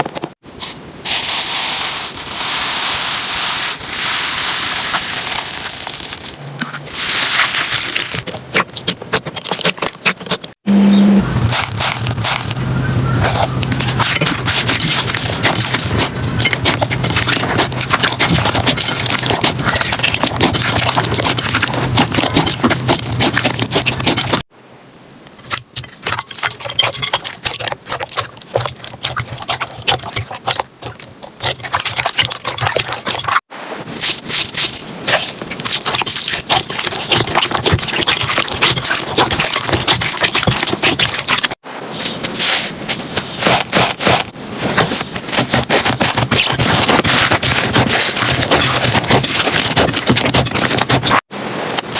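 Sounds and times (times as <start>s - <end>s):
slime squelching and popping: 13.2s - 24.5s, 25.4s - 33.4s, 34.0s - 41.6s, 43.3s - 51.2s.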